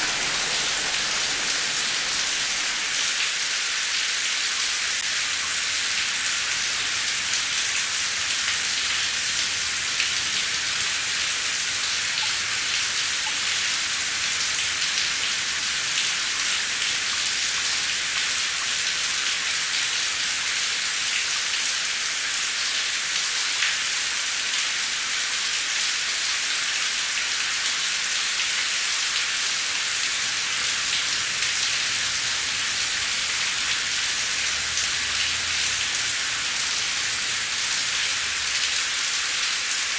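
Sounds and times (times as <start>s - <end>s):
heavy rain hissing: 0.0s - 19.7s, 28.9s - 39.9s.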